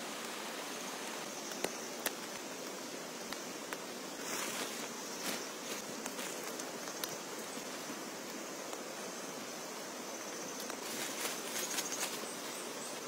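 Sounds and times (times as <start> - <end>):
steady rain hissing: 0.0 - 13.0.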